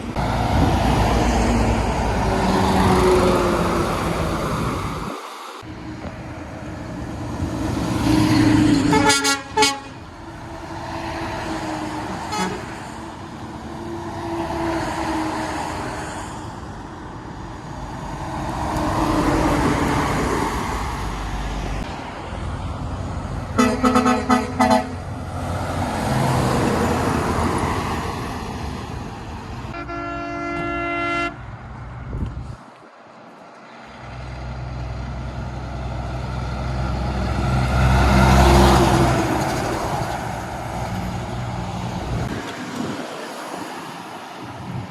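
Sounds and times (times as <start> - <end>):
heavy trucks passing: 0.0 - 44.9
truck horn blasts: 8.7 - 10.1, 12.1 - 13.0, 23.5 - 25.1, 29.7 - 31.5.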